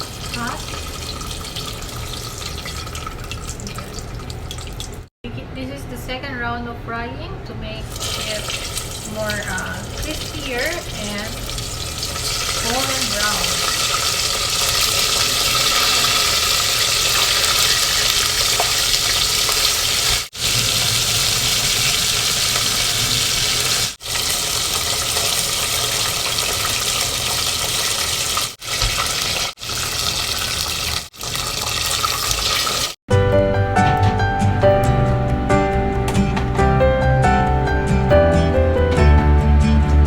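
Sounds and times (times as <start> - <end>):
chicken deep-frying in oil: 0.0 - 5.1, 7.9 - 33.0
music: 33.1 - 40.0.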